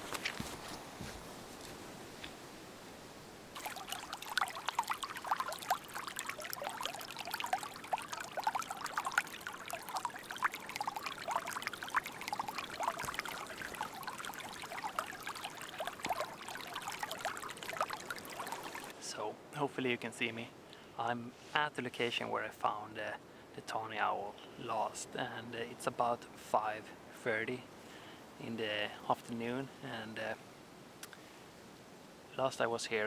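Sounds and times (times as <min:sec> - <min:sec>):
stream trickling and gurgling: 0:00.0 - 0:19.0.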